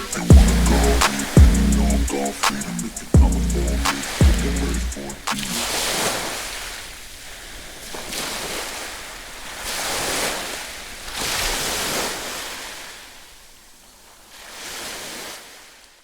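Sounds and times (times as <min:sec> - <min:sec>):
waves breaking: 0:03.8 - 0:13.1.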